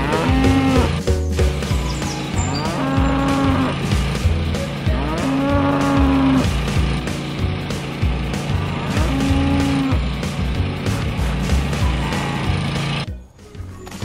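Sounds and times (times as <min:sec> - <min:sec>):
cow mooing: 0:00.0 - 0:01.0, 0:02.4 - 0:03.9, 0:04.8 - 0:06.5, 0:08.6 - 0:10.0
background music with low beat: 0:00.0 - 0:14.0.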